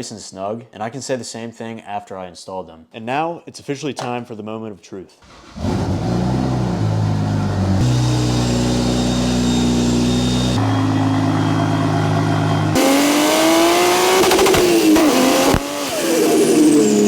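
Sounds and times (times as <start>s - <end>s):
car engine idling and revving: 5.3s - 17.0s.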